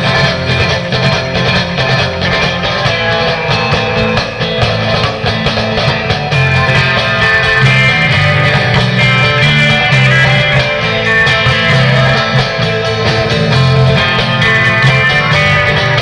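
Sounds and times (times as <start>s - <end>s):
instrumental guitar band music: 0.0s - 16.0s.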